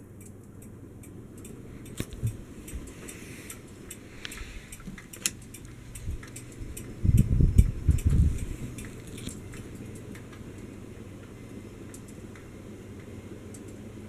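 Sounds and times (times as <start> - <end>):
ceiling fan humming: 0.0 - 14.0
light ticks and clicks: 0.0 - 14.0
loud low rumbling bursts: 5.8 - 8.8.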